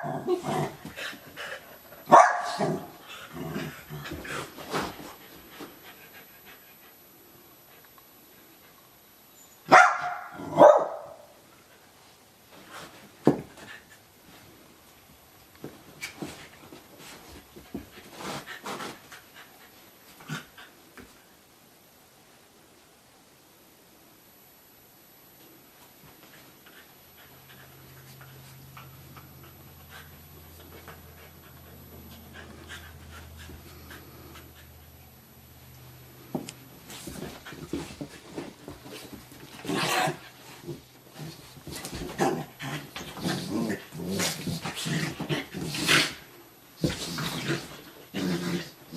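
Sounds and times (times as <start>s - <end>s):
low steady hum: 0.0s - 48.9s
dog barking: 2.1s - 2.9s, 9.7s - 11.3s
dogs scuffling: 36.2s - 46.2s.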